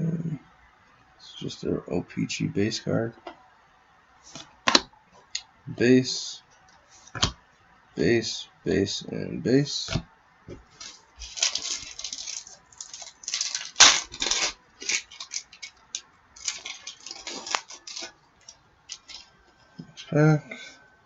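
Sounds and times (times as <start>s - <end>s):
foil wrapper crinkling: 10.7s - 19.4s.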